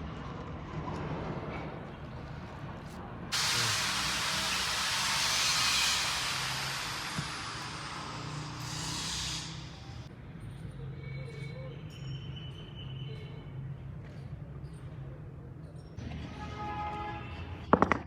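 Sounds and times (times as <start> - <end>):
pressurised jet hissing: 3.3 - 10.1.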